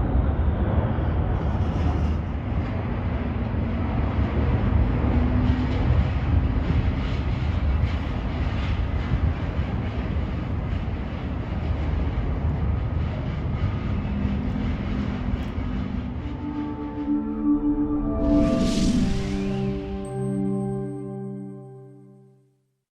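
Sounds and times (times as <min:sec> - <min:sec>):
jet engines roaring: 0:10.5 - 0:20.5.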